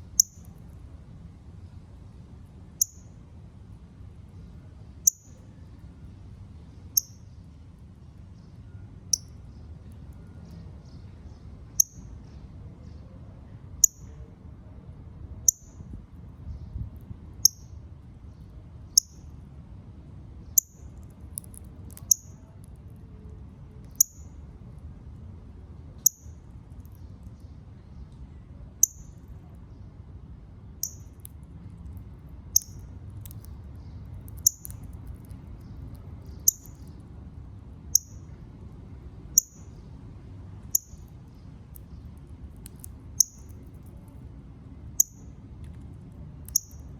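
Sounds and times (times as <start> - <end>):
low background rumble: 0.0 - 46.9
bird chip calls: 35.6 - 37.0.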